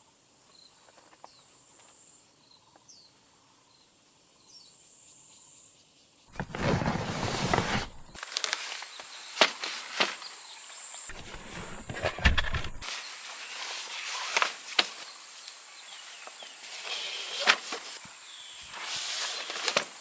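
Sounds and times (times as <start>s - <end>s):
camping gear clicks and knocks: 6.4s - 8.6s, 11.1s - 12.9s.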